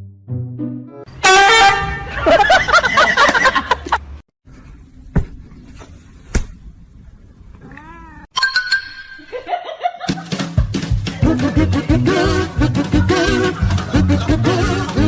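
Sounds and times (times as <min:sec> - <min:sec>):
cat meowing: 0:07.6 - 0:08.3.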